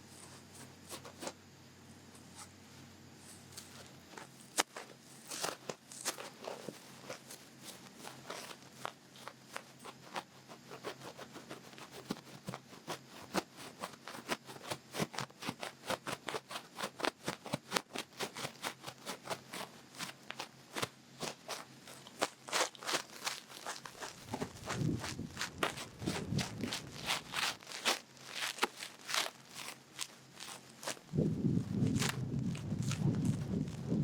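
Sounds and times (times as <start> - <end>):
ear pick scratching in ear: 21.2 - 34.0.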